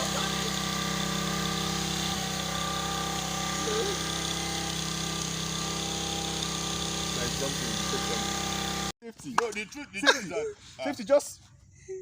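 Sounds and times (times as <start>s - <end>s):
engine humming: 0.0s - 8.9s.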